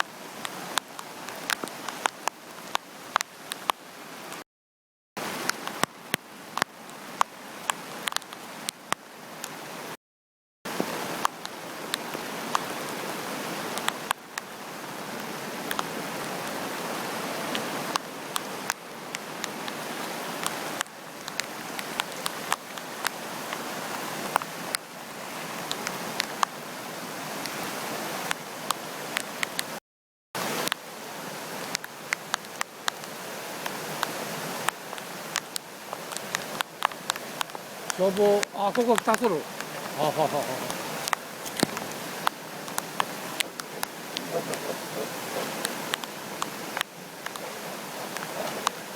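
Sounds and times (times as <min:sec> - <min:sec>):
river rushing with steady roar: 0:00.0 - 0:04.4, 0:05.2 - 0:09.9, 0:10.7 - 0:29.8, 0:30.4 - 0:48.9
sharp ticks: 0:36.8 - 0:42.8.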